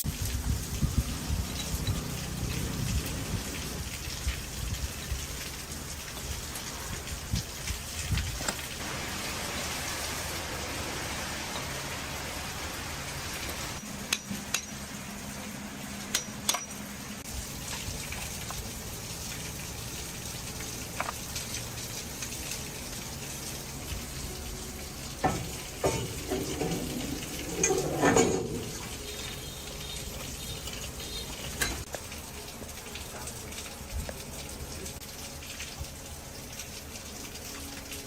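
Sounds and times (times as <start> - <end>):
knocks and rattles: 25.2 - 29.0.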